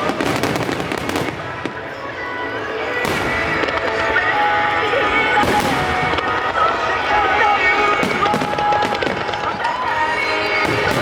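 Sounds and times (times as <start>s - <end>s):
fireworks bursting: 0.0s - 11.0s
music: 0.0s - 11.0s
sharp firework bangs: 3.0s - 4.3s, 5.4s - 6.6s, 10.6s - 11.0s.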